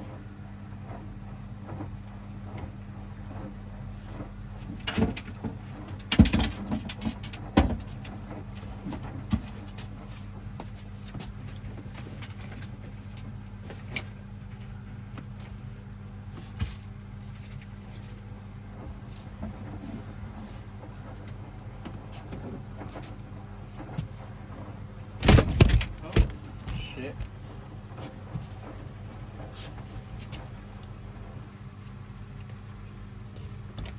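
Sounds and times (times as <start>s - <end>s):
washing machine motor hum: 0.0s - 33.9s
sharp knocks: 25.2s - 27.3s.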